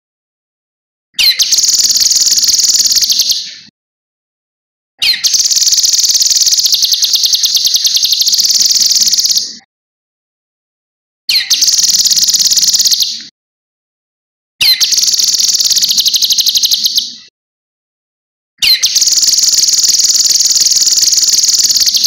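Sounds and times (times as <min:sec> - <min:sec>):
bird high rapid trills: 0:01.2 - 0:03.5, 0:05.0 - 0:09.5, 0:11.3 - 0:13.1, 0:14.6 - 0:17.1, 0:18.6 - 0:22.0.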